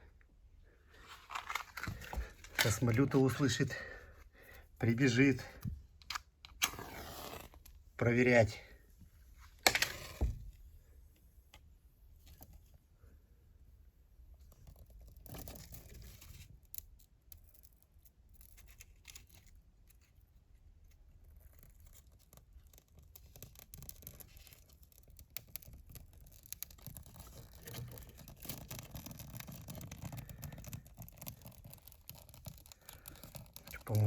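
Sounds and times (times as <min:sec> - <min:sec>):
firewood being handled: 0:00.9 - 0:10.9, 0:23.6 - 0:34.0
light scraping and clicks: 0:01.0 - 0:03.8, 0:21.2 - 0:34.0.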